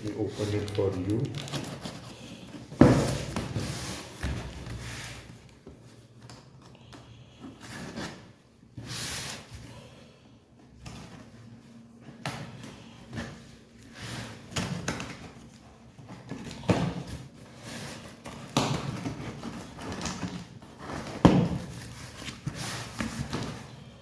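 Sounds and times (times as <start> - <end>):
cardboard packaging rustling: 0.0 - 6.6, 13.1 - 24.0.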